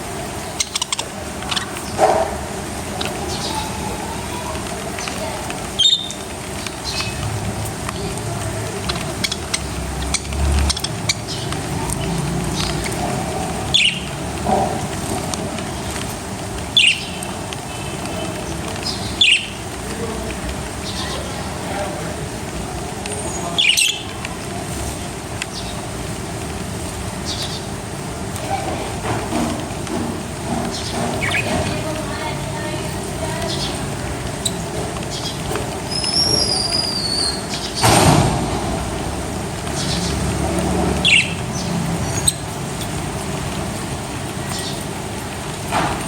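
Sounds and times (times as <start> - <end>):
small birds chirping: 0.0 - 45.7
steady rustling hiss: 0.0 - 46.0
high bird chirps: 5.8 - 6.2, 13.6 - 14.1, 16.7 - 17.3, 18.8 - 19.6, 33.5 - 37.9, 41.0 - 42.6
steady rushing noise: 37.4 - 46.0.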